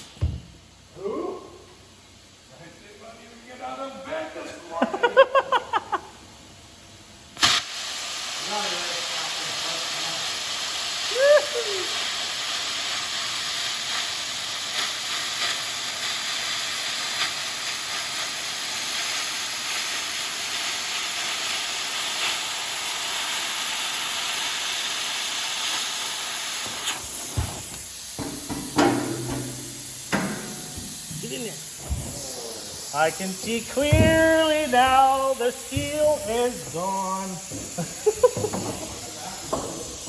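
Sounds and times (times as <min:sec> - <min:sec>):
plasma cutter hissing: 0:00.0 - 0:00.3, 0:07.4 - 0:40.0
knocks: 0:00.2 - 0:00.6, 0:27.3 - 0:31.0, 0:33.8 - 0:34.5.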